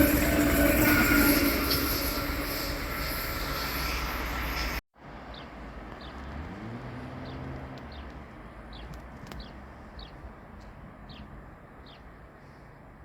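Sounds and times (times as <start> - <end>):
train wheels rolling: 0.0 - 4.8.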